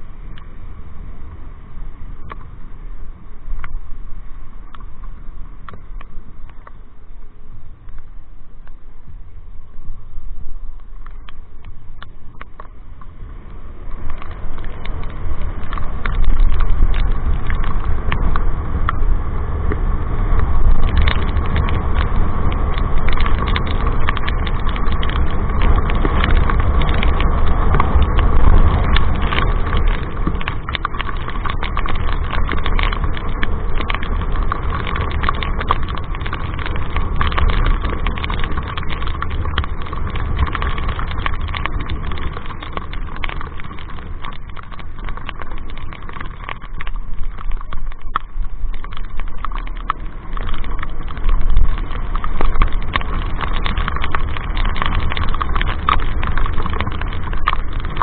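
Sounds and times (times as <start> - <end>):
constant hum: 0.0 - 58.0
motorcycle engine rumble: 0.0 - 58.0
sharp ticks: 13.8 - 19.0, 19.7 - 58.0.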